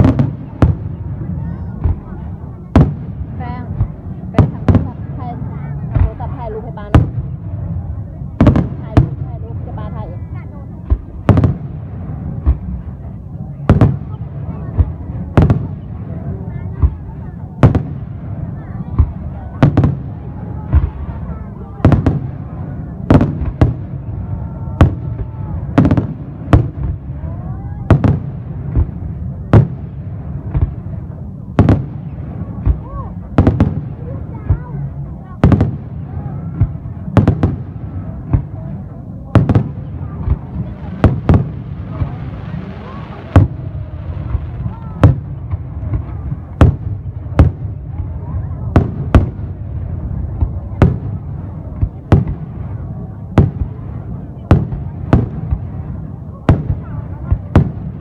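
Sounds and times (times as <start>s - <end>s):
fireworks bangs: 0.0s - 58.0s
low rumble of fireworks: 0.0s - 58.0s.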